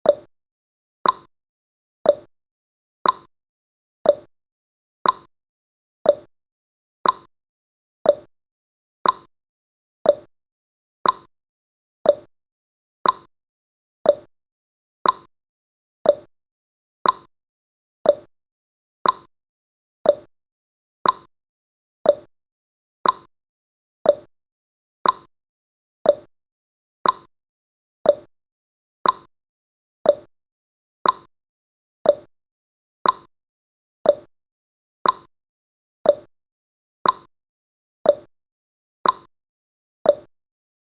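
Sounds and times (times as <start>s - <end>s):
timer ticking in two tones: 0.0s - 0.3s, 1.0s - 1.3s, 2.0s - 2.3s, 3.0s - 3.3s, 4.0s - 4.3s, 5.0s - 5.3s, 6.0s - 6.3s, 7.0s - 7.3s, 8.0s - 8.3s, 9.0s - 9.3s, 10.0s - 10.3s, 11.0s - 11.3s, 12.0s - 12.3s, 13.0s - 13.3s, 14.0s - 14.3s, 15.0s - 15.3s, 16.0s - 16.3s, 17.0s - 17.3s, 18.0s - 18.3s, 19.0s - 19.3s, 20.0s - 20.3s, 21.0s - 21.3s, 22.0s - 22.3s, 23.0s - 23.3s, 24.0s - 24.3s, 25.0s - 25.3s, 26.0s - 26.3s, 27.0s - 27.3s, 28.0s - 28.3s, 29.0s - 29.3s, 30.0s - 30.3s, 31.0s - 31.3s, 32.0s - 32.3s, 33.0s - 33.3s, 34.0s - 34.3s, 35.0s - 35.3s, 36.0s - 36.3s, 37.0s - 37.3s, 38.0s - 38.3s, 39.0s - 39.3s, 40.0s - 40.4s.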